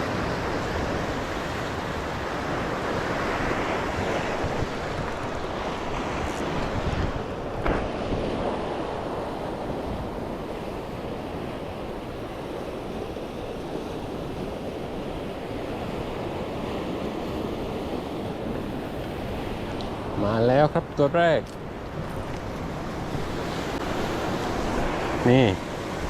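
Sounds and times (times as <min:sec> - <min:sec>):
wind on microphone: 0:00.0 - 0:20.3, 0:21.6 - 0:26.0
sea waves washing on shore: 0:00.0 - 0:26.0.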